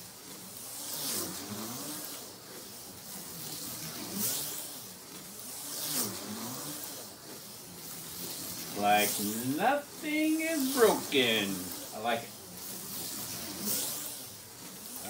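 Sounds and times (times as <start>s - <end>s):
slot car motor whining: 0.0s - 15.0s
pickup shoes hissing on rails: 0.6s - 15.0s.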